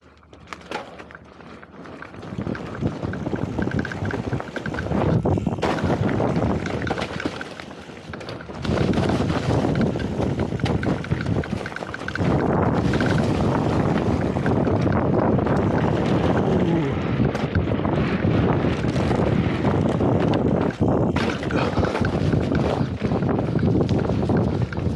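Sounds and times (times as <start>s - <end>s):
tyres rattling over dirt: 0.1s - 24.9s
wind buffeting microphone: 1.9s - 24.9s.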